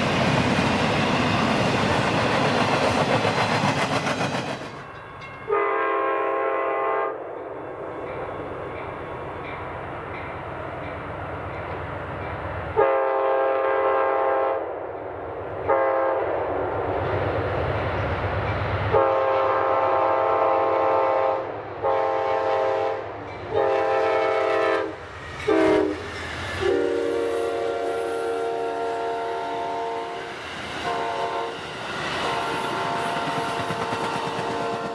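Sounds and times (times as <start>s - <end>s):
moving train rumble: 0.0s - 34.9s
locomotive air horn blasts: 5.5s - 7.2s, 12.8s - 14.6s, 15.7s - 16.2s, 18.9s - 26.0s, 26.6s - 30.3s, 30.9s - 31.6s, 32.2s - 34.9s.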